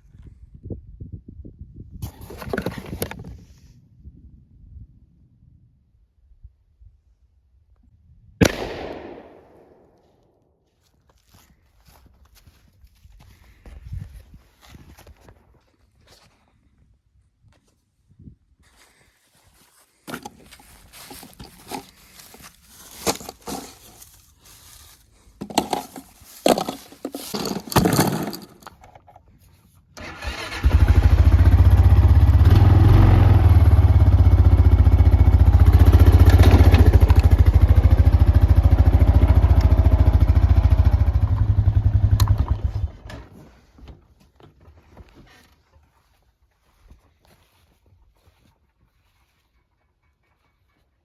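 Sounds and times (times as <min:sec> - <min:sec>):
knocks and rustles: 0:19.9 - 0:29.4
atv engine running: 0:30.1 - 0:43.2.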